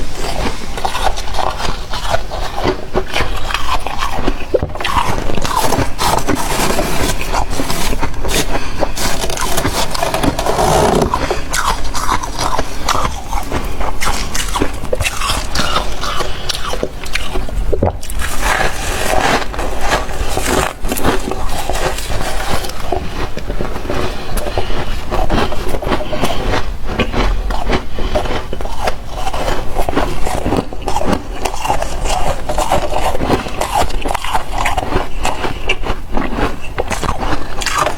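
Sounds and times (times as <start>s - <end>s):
chewing crunchy frost: 0.0s - 37.9s.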